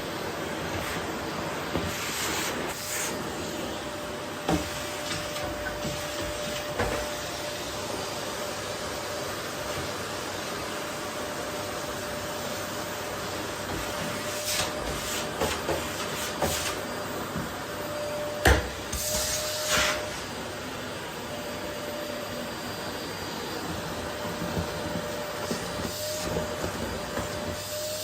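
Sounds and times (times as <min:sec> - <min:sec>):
vacuum cleaner running: 0:00.0 - 0:28.0
vacuum nozzle sucking: 0:00.6 - 0:03.7, 0:13.4 - 0:17.0, 0:18.7 - 0:20.3, 0:23.7 - 0:28.0.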